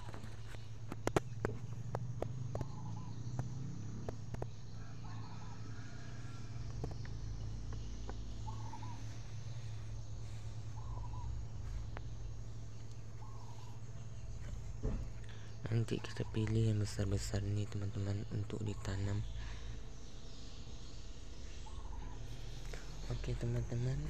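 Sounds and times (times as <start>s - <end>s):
steady low hum: 0.0s - 24.0s
bird call: 8.1s - 9.6s.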